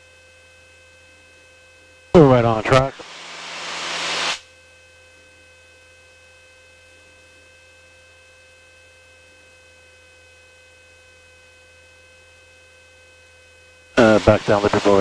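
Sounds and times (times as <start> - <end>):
faint electrical hum: 2.1 - 4.4, 11.7 - 15.0
high whine tones: 2.2 - 4.4, 14.0 - 15.0
light hiss: 2.2 - 4.4.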